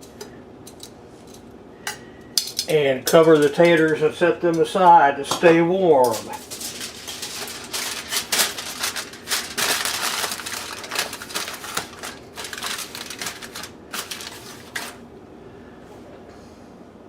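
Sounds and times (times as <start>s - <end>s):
aluminium foil crinkling: 2.6s - 4.2s, 6.0s - 15.0s.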